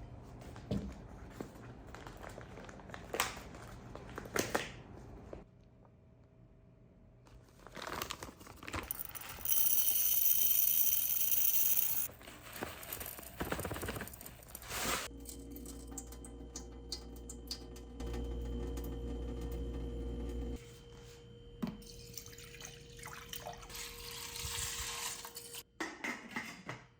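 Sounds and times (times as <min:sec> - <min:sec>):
low appliance hum: 0:08.6 - 0:25.6
kitchen clatter: 0:23.9 - 0:26.9.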